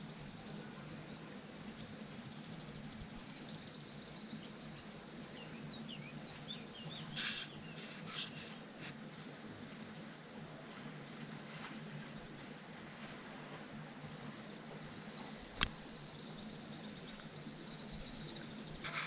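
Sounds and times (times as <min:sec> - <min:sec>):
faint steady background noise: 0:00.0 - 0:19.0
birds chirping: 0:01.8 - 0:08.8
sharp bird calls: 0:06.9 - 0:08.6
bird trilling: 0:07.1 - 0:08.5.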